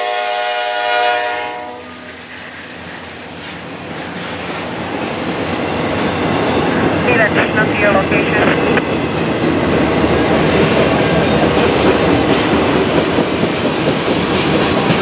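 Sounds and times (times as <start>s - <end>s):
locomotive horn chord: 0.0s - 2.1s
train rumble and wheel noise: 0.0s - 15.0s.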